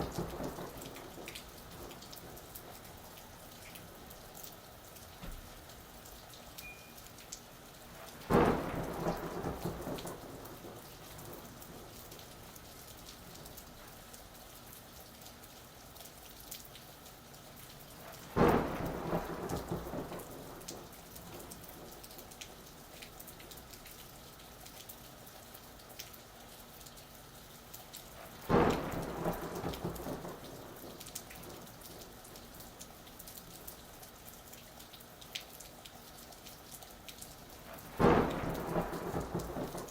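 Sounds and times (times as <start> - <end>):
thunderclaps rumbling: 0.0 - 2.4, 8.3 - 12.3, 18.3 - 22.0, 28.4 - 32.5, 37.6 - 39.9
steady rain falling: 0.0 - 39.9.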